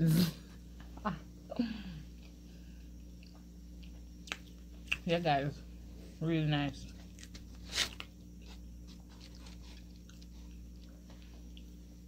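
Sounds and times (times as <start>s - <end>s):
faint steady hum: 0.0s - 12.0s
person chewing food: 2.1s - 5.1s, 7.0s - 12.0s
wet mouth clicks and smacks: 3.2s - 5.0s.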